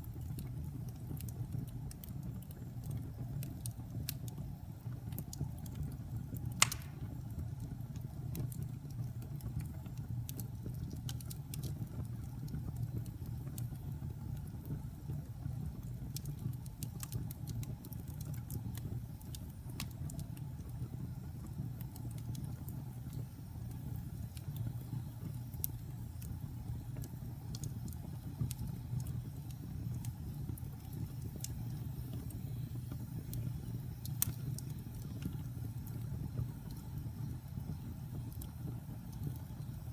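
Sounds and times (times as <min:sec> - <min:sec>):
fire crackles and pops: 0:00.0 - 0:39.9
fire rumbling: 0:00.0 - 0:39.9
sharp wood snap: 0:06.6 - 0:07.0.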